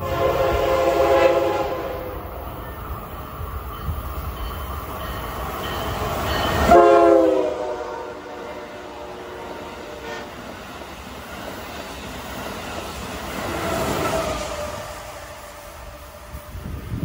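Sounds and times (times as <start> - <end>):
train horn: 0.0 - 2.3, 6.5 - 10.4
train rushing past: 0.0 - 17.0.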